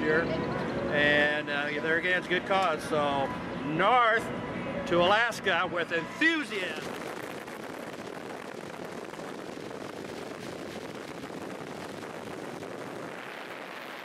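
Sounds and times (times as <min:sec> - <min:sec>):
steady rushing noise: 0:05.1 - 0:14.0.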